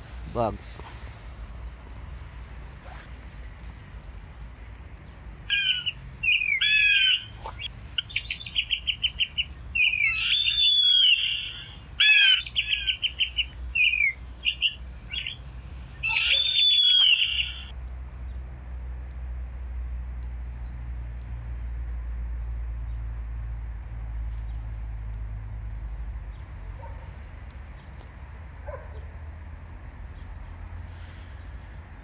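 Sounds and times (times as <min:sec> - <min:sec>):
bird chirping and trilling: 0:05.5 - 0:17.7.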